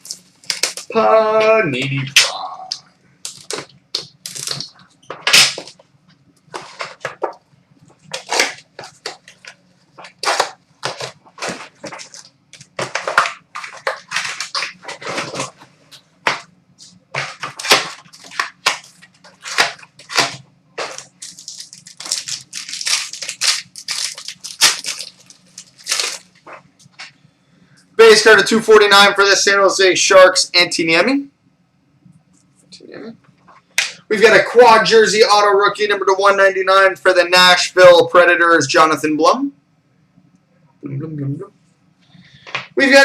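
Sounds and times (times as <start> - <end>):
plastic wrapping crinkling: 0.0 - 1.0, 2.7 - 27.2
faint low hum: 0.0 - 43.0
packaging snaps: 17.2 - 27.1.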